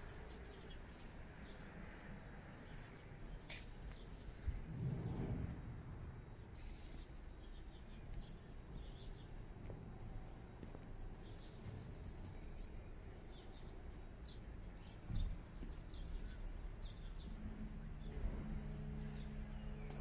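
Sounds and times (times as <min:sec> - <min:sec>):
low steady rumble: 0:04.1 - 0:11.3
small birds chirping: 0:06.3 - 0:09.9, 0:10.5 - 0:20.0.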